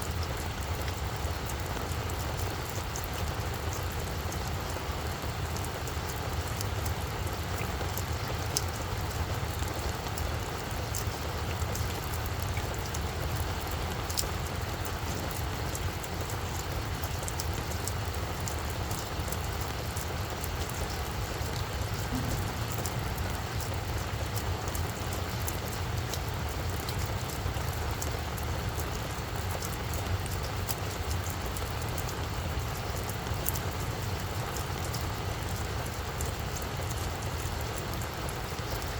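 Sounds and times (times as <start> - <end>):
rain falling on flower bed: 0.0 - 38.9
low rumble: 21.8 - 25.8.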